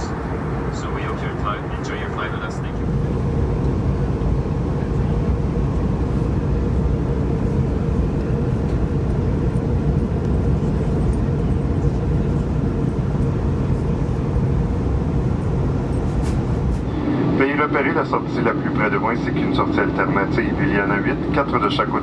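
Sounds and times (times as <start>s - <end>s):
airflow rush: 0.0s - 17.6s
steady hum: 0.0s - 17.6s
jet engine drone: 0.0s - 22.0s.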